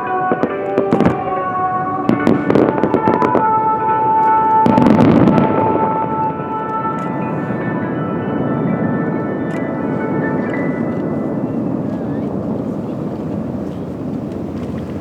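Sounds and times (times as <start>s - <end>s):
fireworks bursting and crackling: 0.0s - 7.9s
music with long held tones: 0.0s - 15.0s.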